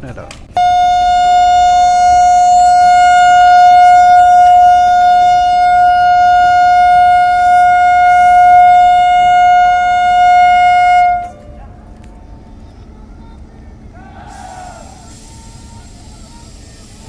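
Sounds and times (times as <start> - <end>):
train horn blast: 0.6 - 11.9.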